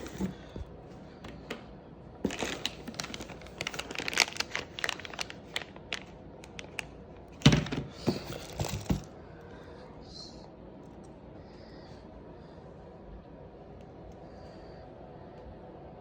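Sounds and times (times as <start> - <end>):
handling clicks and crinkling: 2.2 - 9.1.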